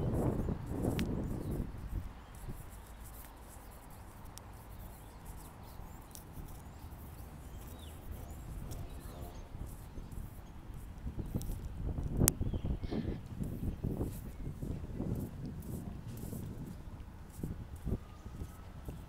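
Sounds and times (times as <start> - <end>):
birds chirping faintly: 0.0 - 14.6.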